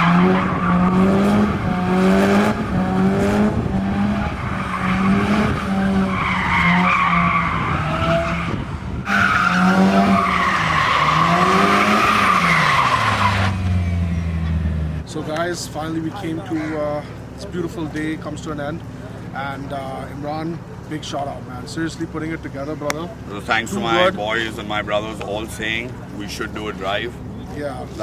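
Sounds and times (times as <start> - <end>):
tyres squealing: 0.0 - 2.4, 4.0 - 15.1, 22.1 - 28.0
car engine revving: 0.0 - 15.4, 23.2 - 27.6.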